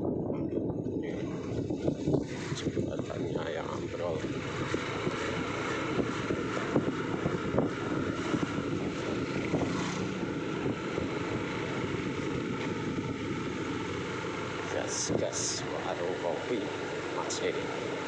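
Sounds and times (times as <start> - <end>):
scooter engine and tyre noise: 0.0 - 18.0
wind rushing over microphone: 0.0 - 18.0.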